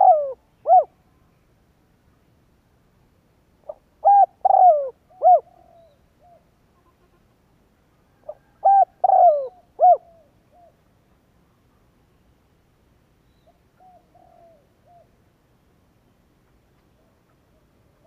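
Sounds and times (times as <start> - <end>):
dove cooing: 0.0 - 1.0, 3.6 - 6.5, 8.2 - 10.8, 13.4 - 15.2.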